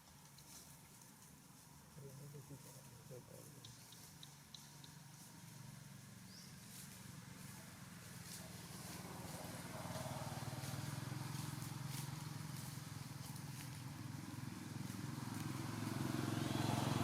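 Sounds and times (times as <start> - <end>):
faint ticks: 3.6 - 5.2
motor engine running: 5.1 - 17.0.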